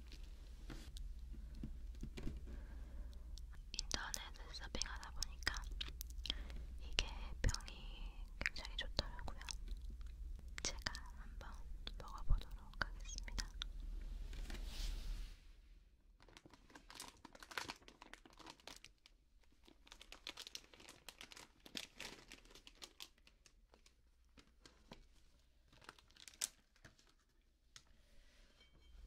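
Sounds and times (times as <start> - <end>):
plastic packaging crinkling: 16.2 - 27.4.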